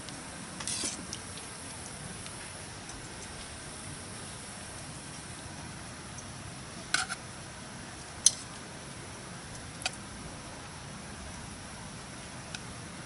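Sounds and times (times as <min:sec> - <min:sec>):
campfire crackling and popping: 0:00.0 - 0:10.2.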